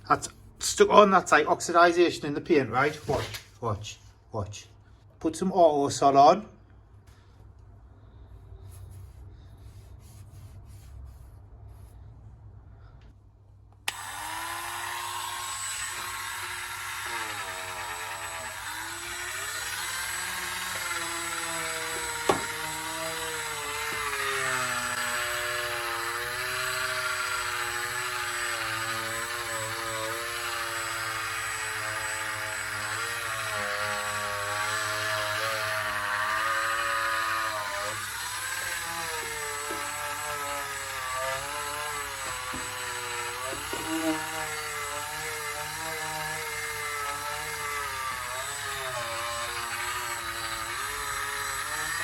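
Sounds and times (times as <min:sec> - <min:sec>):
rotary tool polishing metal: 0:13.9 - 0:52.0.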